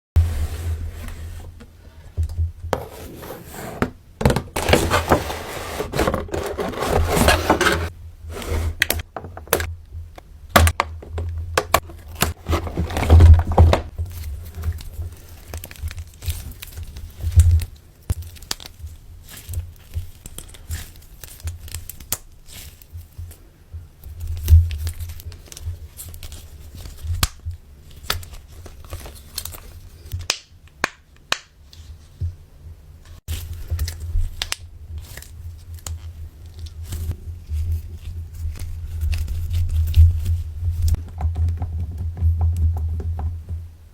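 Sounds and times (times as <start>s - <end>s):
plastic packaging crinkling: 4.5s - 7.9s, 11.0s - 17.6s.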